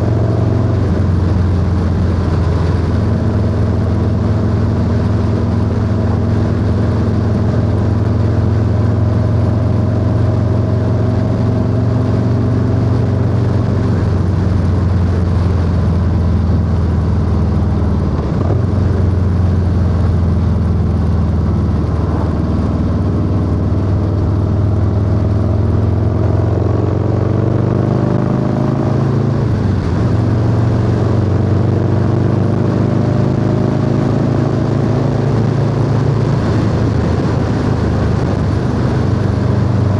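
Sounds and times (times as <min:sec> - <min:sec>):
motorcycle engine cruising: 0:00.0 - 0:39.9
wind rush: 0:20.4 - 0:25.4, 0:28.9 - 0:39.9.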